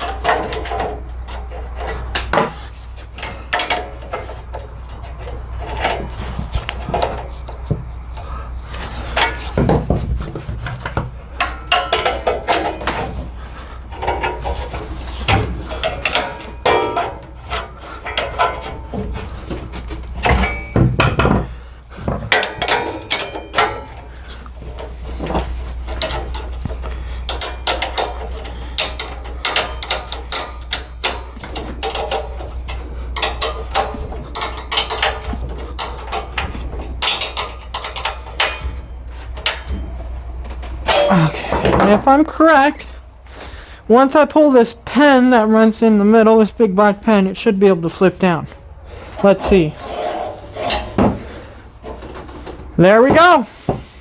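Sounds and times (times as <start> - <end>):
hand tools clanking: 0.0 - 46.4, 47.1 - 54.0
steady low hum: 0.0 - 54.0.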